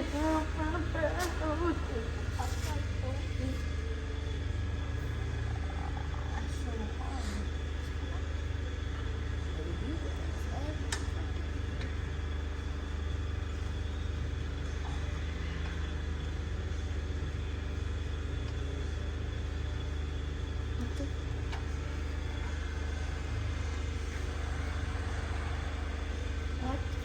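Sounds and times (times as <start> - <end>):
low mechanical hum: 0.0 - 27.0.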